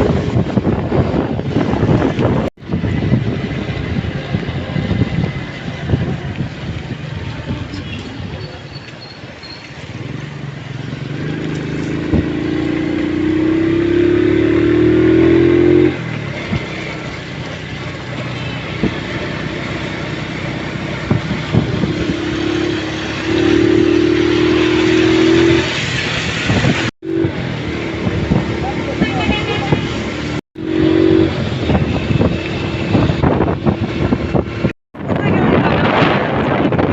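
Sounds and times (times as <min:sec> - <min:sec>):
road and wind noise: 0:00.0 - 0:36.9
vehicle engine accelerating: 0:09.7 - 0:36.9.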